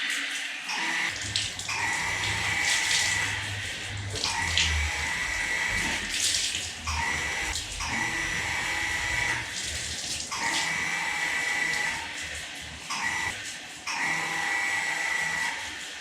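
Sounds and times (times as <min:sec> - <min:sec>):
tap water splashing in basin: 0:01.1 - 0:05.0, 0:05.8 - 0:08.0, 0:09.4 - 0:10.8.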